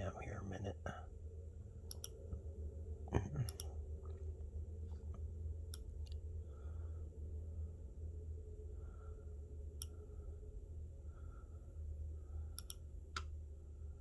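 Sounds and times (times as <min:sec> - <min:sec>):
steady low hum: 0:00.0 - 0:14.0
computer mouse clicking: 0:01.8 - 0:02.2, 0:12.5 - 0:13.4.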